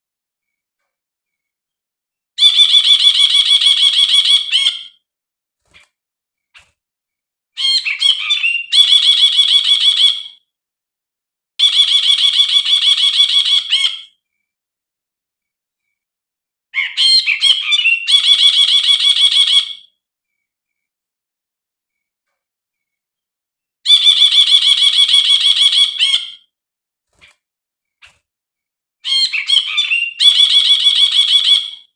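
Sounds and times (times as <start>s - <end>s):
bulbul calling with rattling trill: 7.6s - 10.3s, 11.6s - 14.2s, 16.8s - 19.9s, 23.8s - 26.4s, 29.0s - 31.9s.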